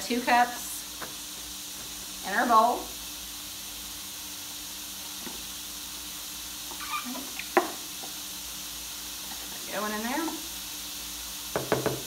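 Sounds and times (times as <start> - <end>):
meat sizzling in skillet: 0.0 - 12.0
cup tapping plastic bowl: 11.6 - 12.0.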